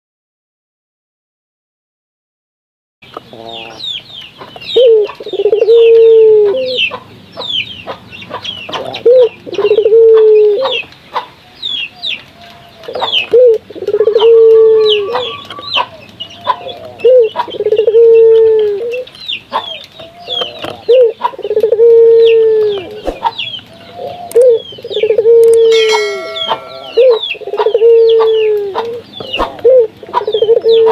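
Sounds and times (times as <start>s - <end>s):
small birds chirping: 3.0s - 30.9s
dove cooing: 4.7s - 8.0s, 8.7s - 10.8s, 12.8s - 30.9s.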